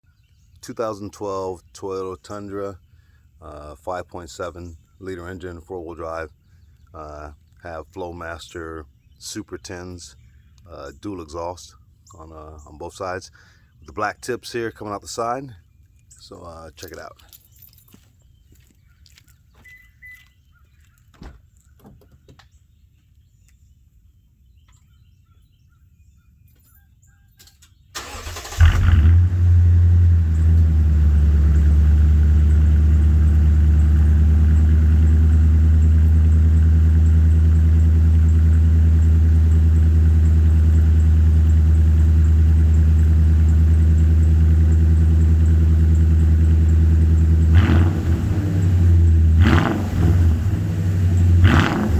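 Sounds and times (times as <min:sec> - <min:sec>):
engine cranking and starting: 0:28.0 - 0:30.8
loud engine idling: 0:28.0 - 0:51.9.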